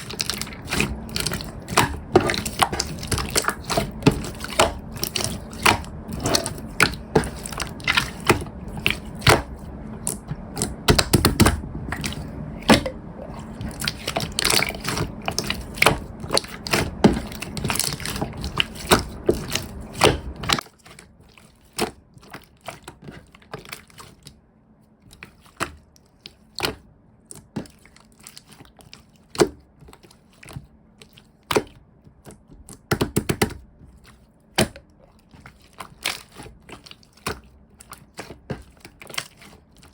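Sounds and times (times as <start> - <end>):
slime squished by hand: 0.0 - 24.3
low rumble: 0.7 - 17.6.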